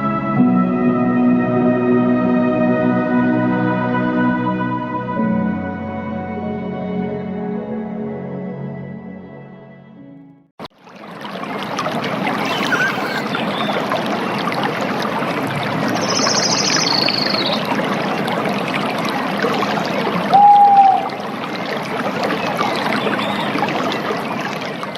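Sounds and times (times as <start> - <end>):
stream water rushing: 10.8 - 24.9
bird's fast trill: 12.4 - 13.8, 16.0 - 17.6.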